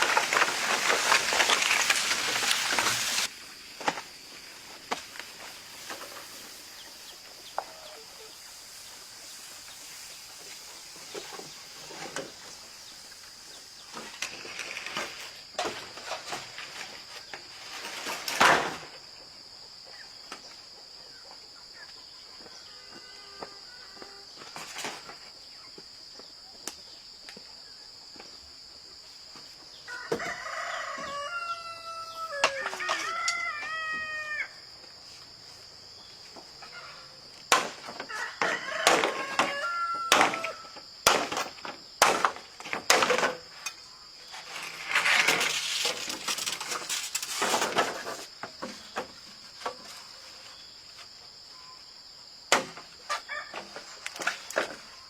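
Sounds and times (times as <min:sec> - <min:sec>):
high insect drone: 0:00.0 - 0:55.0
rooster crowing: 0:29.9 - 0:34.6, 0:38.1 - 0:40.8.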